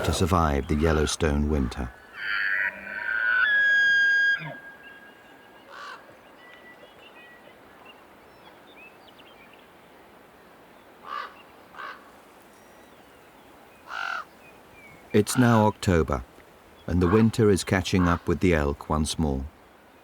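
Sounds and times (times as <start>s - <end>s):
bird cawing: 1.9s - 6.1s, 11.0s - 12.1s, 13.9s - 14.3s, 16.9s - 17.3s
elk bugling whistle: 2.2s - 5.3s.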